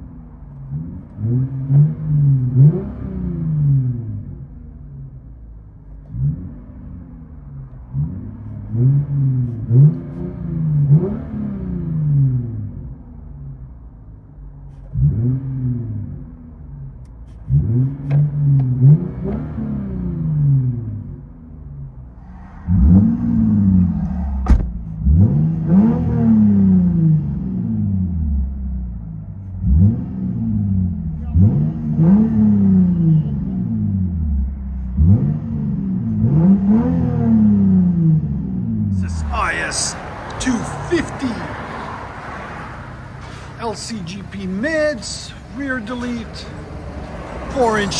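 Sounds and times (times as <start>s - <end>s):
car engine revving: 0.0s - 5.2s, 6.0s - 13.6s, 21.8s - 47.9s
exhaust cracks: 39.0s - 47.9s.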